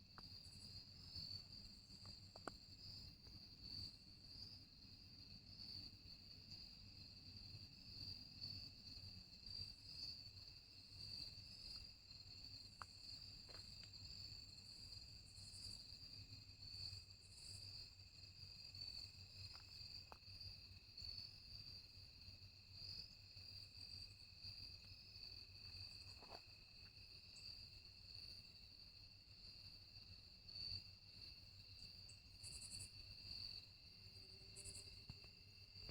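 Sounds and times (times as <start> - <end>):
crickets chirping: 0.0 - 35.9
faint ticks: 0.1 - 3.4, 12.5 - 14.3, 34.5 - 35.9.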